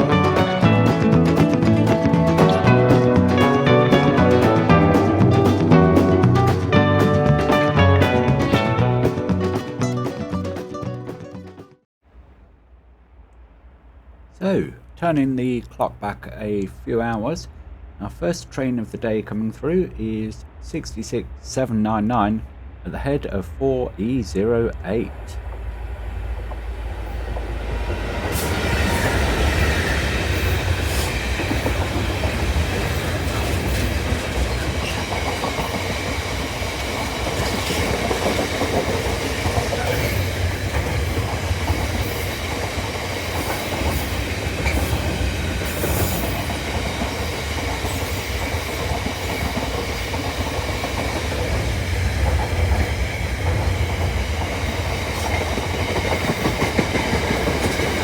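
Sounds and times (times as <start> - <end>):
freight wagons rumbling: 0.0 - 11.1, 14.2 - 58.0
wheels clicking over rail joints: 27.3 - 58.0.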